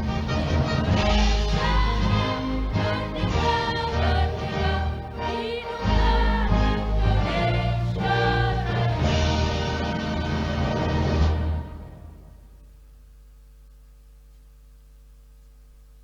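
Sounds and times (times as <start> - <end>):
choir singing: 0.0 - 12.2.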